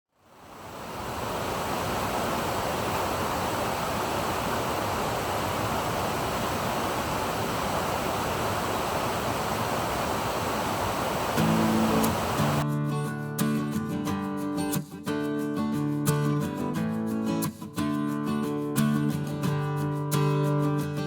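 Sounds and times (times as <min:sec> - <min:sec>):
waterfall roaring: 0:00.2 - 0:12.6.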